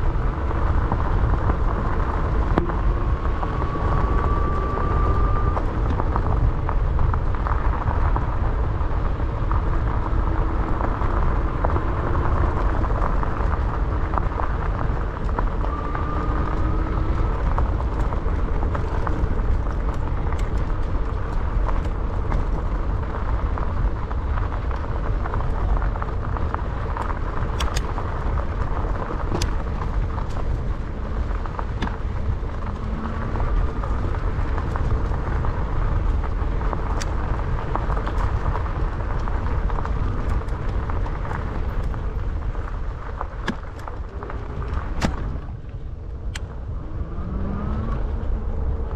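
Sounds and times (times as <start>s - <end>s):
wind rush across microphone: 0.0s - 48.9s
sharp clicks and rattles: 17.0s - 46.6s.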